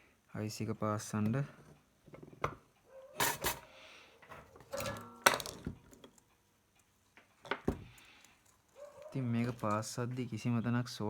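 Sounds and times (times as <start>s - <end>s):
metal tools clinking on workbench: 3.2s - 3.6s.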